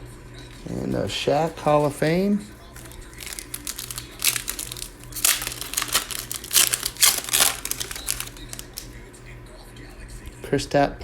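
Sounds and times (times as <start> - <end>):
wrapper tearing and crinkling: 2.7 - 9.0.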